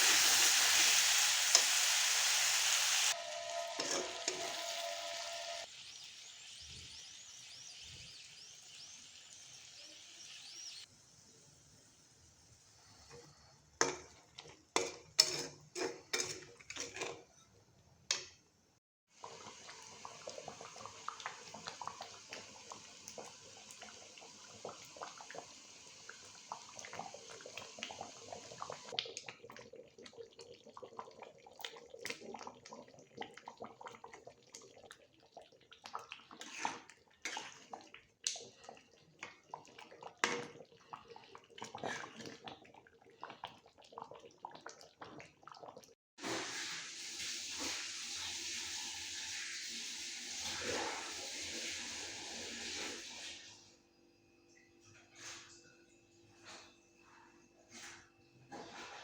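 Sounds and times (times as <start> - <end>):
steady hiss: 0.0 - 3.2
pots and pans clanking: 3.1 - 5.6, 14.8 - 17.4
utensils clinking against dishes: 3.6 - 4.7.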